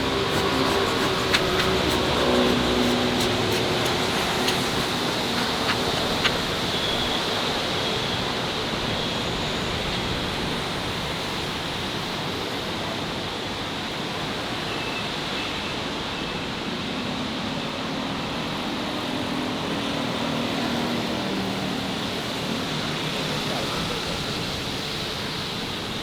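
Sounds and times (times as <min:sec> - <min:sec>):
steady rushing noise: 0:00.0 - 0:07.7.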